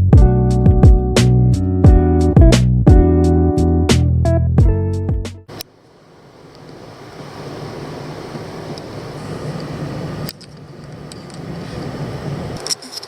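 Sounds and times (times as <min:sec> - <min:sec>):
guitar music: 0:00.0 - 0:05.4.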